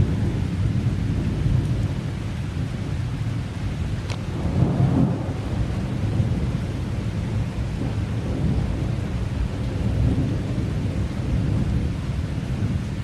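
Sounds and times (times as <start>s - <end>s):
heavy rain: 0.0s - 13.0s
thunder rolling: 4.1s - 12.8s.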